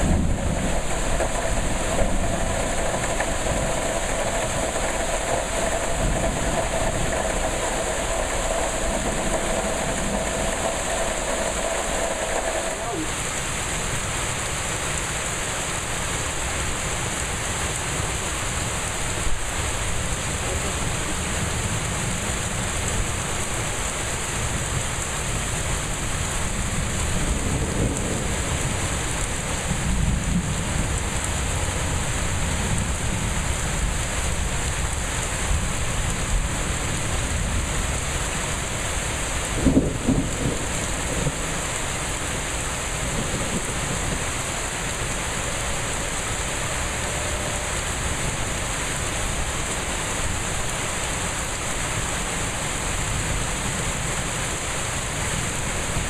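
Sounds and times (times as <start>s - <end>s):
thunder rumbling: 0.0s - 14.1s, 26.0s - 46.1s
heavy rain pouring: 0.0s - 56.0s.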